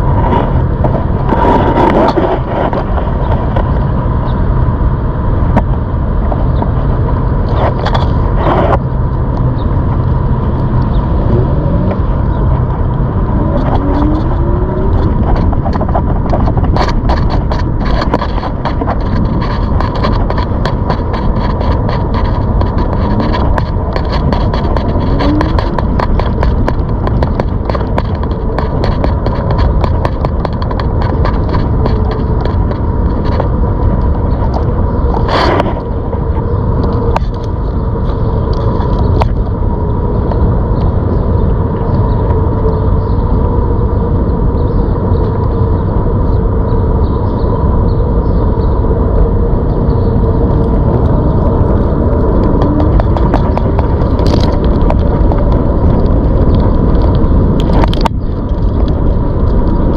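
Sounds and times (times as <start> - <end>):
rushing noise: 0.0 - 59.9
small clicks and rattles: 11.9 - 39.6, 49.9 - 59.9.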